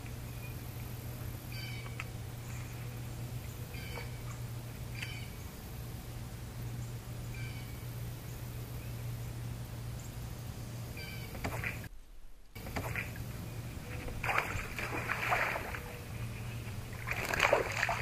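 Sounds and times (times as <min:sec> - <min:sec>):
steady low hum: 0:00.0 - 0:18.0
bird chirping: 0:01.5 - 0:05.6, 0:06.6 - 0:11.9.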